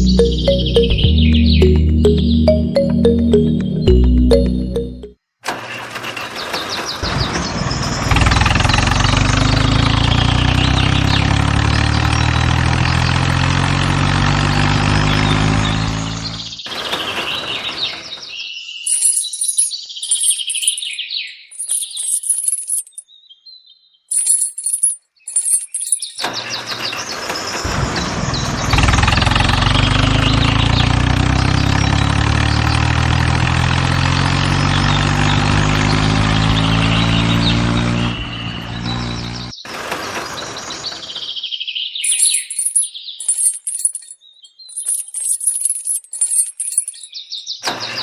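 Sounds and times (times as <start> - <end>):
engine-like drone: 0.0 - 5.1, 7.0 - 17.0, 26.2 - 41.2
high bird-like chirping: 0.0 - 5.1, 18.6 - 23.1, 24.1 - 26.2, 41.3 - 47.6.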